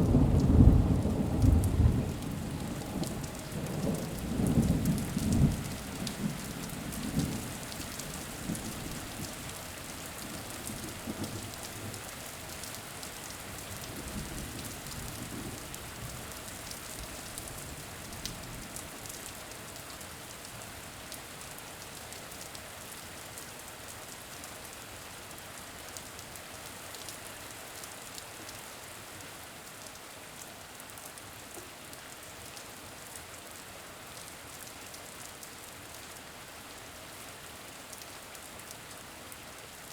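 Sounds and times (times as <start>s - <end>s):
low thunder rumble: 0.0s - 6.4s
steady rain: 0.0s - 39.9s.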